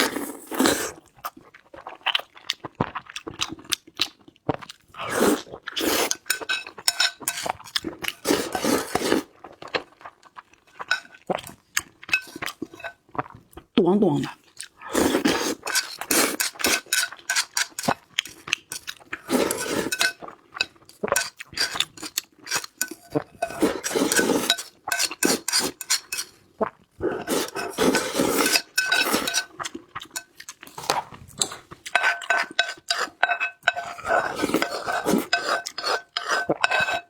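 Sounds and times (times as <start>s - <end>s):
chewing and crunching: 0.0s - 13.7s, 14.3s - 37.0s
utensils clinking on dishes: 5.8s - 9.0s, 10.9s - 11.2s, 12.1s - 13.0s, 15.6s - 26.3s, 27.2s - 29.5s, 30.2s - 37.0s.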